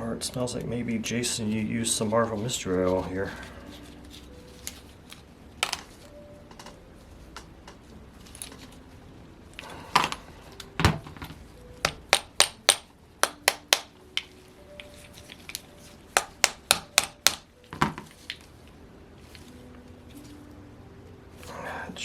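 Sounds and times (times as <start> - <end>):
metal tool clicks and taps: 11.8 - 15.6.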